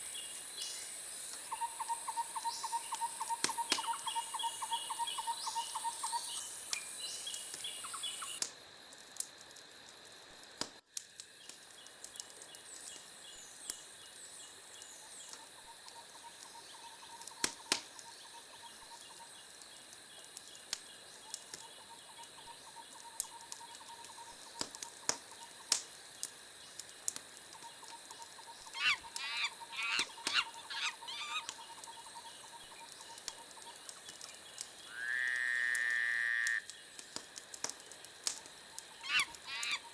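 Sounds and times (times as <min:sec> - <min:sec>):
wood fire crackling: 0:03.2 - 0:35.0, 0:35.7 - 0:39.9
gliding calls: 0:28.8 - 0:31.5.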